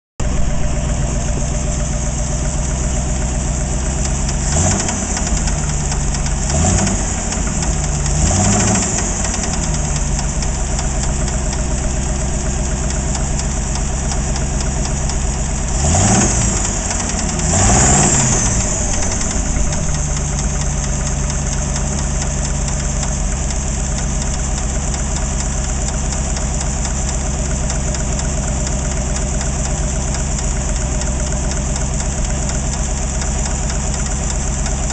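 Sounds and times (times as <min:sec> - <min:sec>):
engine idling with knocking rattle: 0:00.2 - 0:34.9
engine revving: 0:00.3 - 0:25.0.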